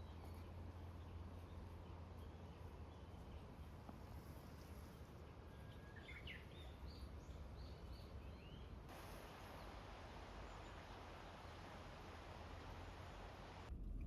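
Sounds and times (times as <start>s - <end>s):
steady hiss: 8.8s - 13.7s.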